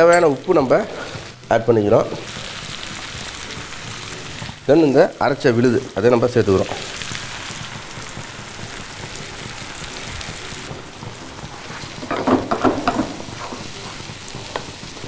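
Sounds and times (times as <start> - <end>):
ladle stirring in pan: 0.0 - 4.6, 6.6 - 15.0
food sizzling in hot oil: 0.0 - 15.0.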